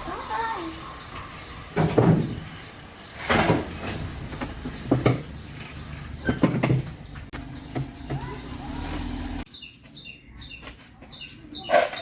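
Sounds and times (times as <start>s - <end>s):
metal objects clanking: 0.7s - 9.4s.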